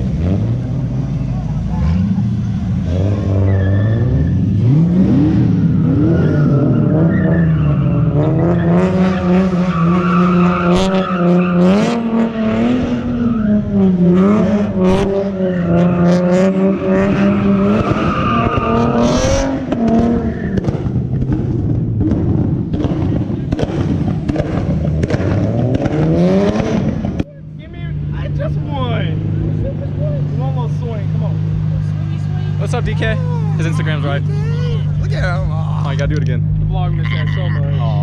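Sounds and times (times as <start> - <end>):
car engine revving high: 0.0 - 38.0
tyres spinning and squealing: 1.7 - 21.3.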